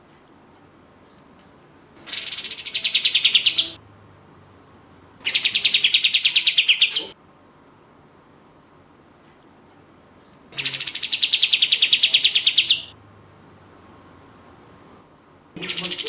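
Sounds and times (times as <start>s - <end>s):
songbird trilling: 2.1s - 3.8s, 5.3s - 7.2s, 10.6s - 12.9s, 15.6s - 16.0s.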